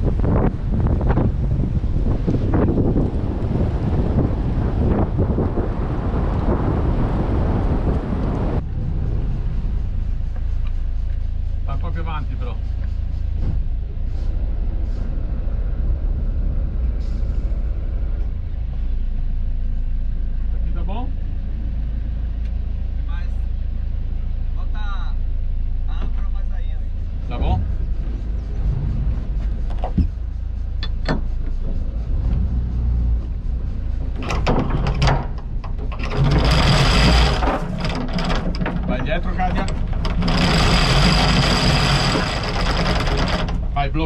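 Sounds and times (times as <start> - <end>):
diesel engine low rumble: 0.0 - 44.0
rattling clicks: 29.3 - 32.0, 33.2 - 44.0
sharp knocks and clicks: 30.8 - 32.5, 33.2 - 43.9.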